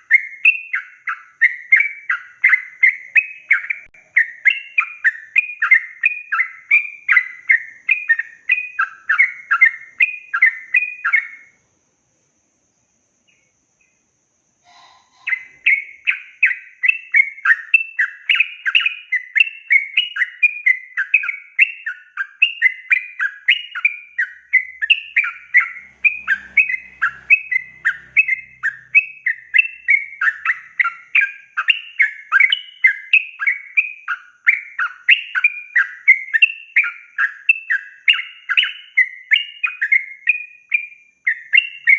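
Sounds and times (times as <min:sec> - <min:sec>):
bird chirping song: 0:00.0 - 0:41.9.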